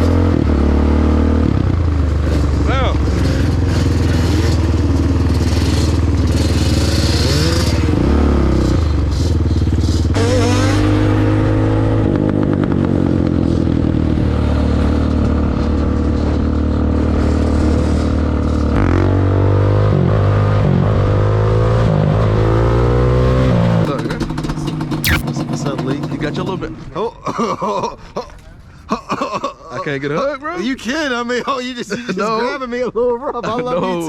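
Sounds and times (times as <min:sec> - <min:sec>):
dirt bike engine revving: 0:02.2 - 0:12.6, 0:25.0 - 0:25.4.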